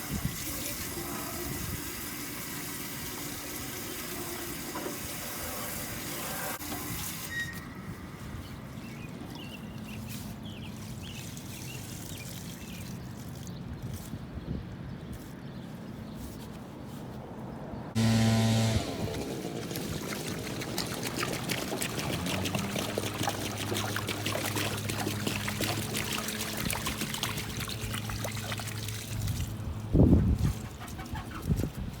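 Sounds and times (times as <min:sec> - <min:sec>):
water pouring and splashing: 0:00.0 - 0:07.6, 0:09.8 - 0:13.6, 0:19.1 - 0:29.9
short loud buzz: 0:18.0 - 0:19.2.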